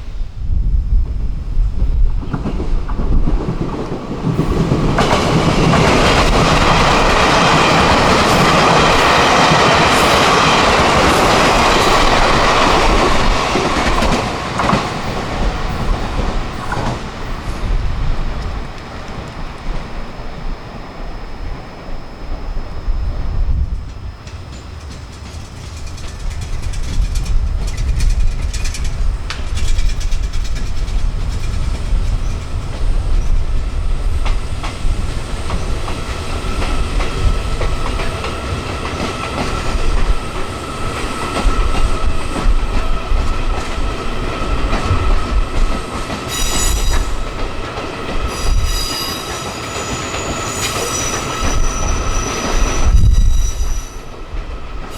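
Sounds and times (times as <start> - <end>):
train rumbling on rails: 0.0 - 54.9
steady high whine: 15.7 - 29.5
wheels clicking over rail joints: 23.9 - 33.4
wheel squeal: 46.3 - 47.2, 48.3 - 54.2.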